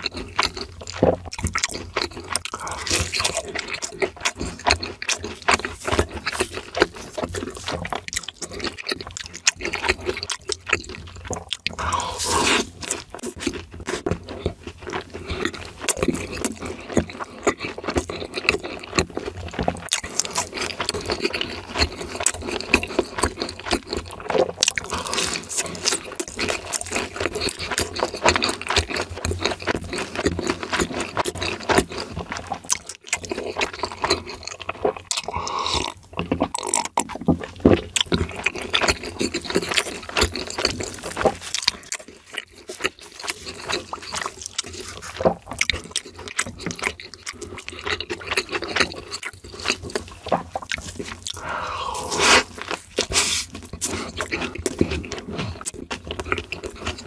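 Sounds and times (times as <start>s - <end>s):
crunchy bites and chewing: 0.0s - 57.0s
wet mouth sounds: 0.0s - 57.0s.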